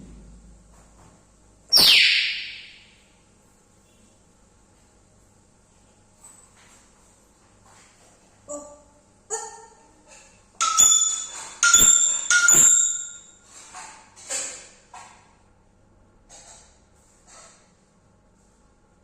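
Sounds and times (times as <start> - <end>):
parrot calling shrilly: 1.7 - 2.9.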